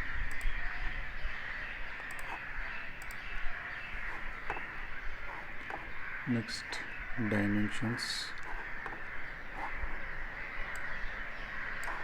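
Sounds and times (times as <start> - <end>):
computer mouse clicking: 0.3 - 0.6, 2.0 - 2.4, 3.0 - 3.3, 4.0 - 6.0, 8.3 - 11.0, 11.6 - 12.0.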